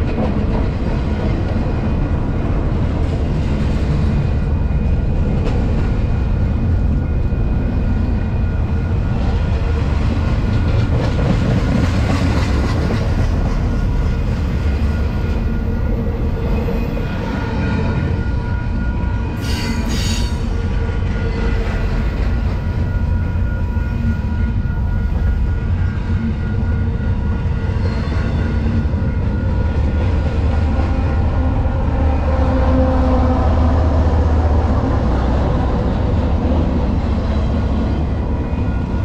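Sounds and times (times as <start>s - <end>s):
diesel locomotive engine: 0.0s - 39.0s
freight train rumbling past: 0.0s - 39.0s
sharp high screech: 19.4s - 20.6s.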